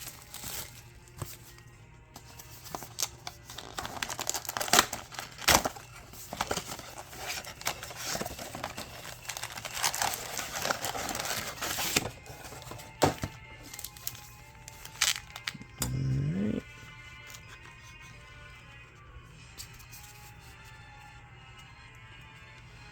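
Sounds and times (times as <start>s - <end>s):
foil wrappers crinkling and tearing: 0.0s - 16.2s.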